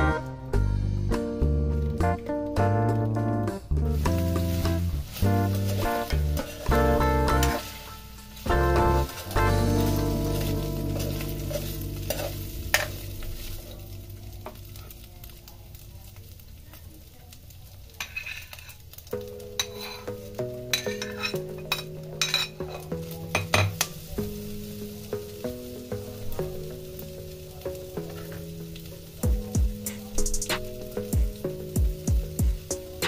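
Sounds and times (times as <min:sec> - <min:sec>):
chicken sizzling in oil: 0:03.4 - 0:33.0
metal spatula scraping wok: 0:03.9 - 0:15.0, 0:18.0 - 0:18.8, 0:19.6 - 0:23.0.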